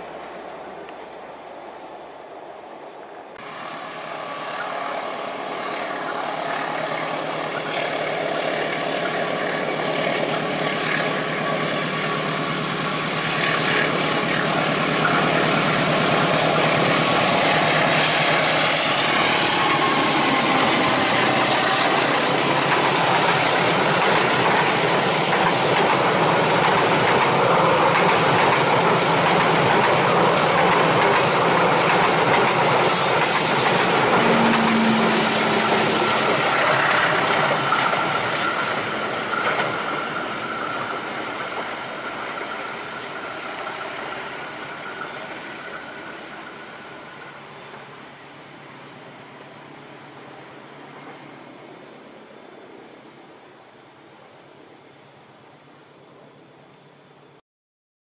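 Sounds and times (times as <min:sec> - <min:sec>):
diesel locomotive engine working hard: 0:03.4 - 0:53.2
train wheels clattering on rails: 0:05.7 - 0:48.0.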